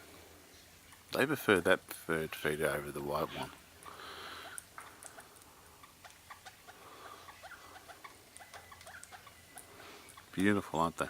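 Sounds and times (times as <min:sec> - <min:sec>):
birds cracking seed: 0:03.8 - 0:10.6.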